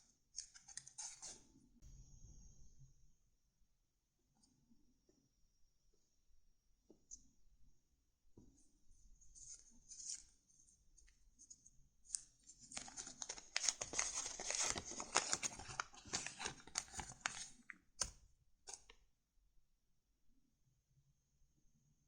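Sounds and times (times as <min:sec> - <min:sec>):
paper rustling and crinkling: 0:12.1 - 0:18.1.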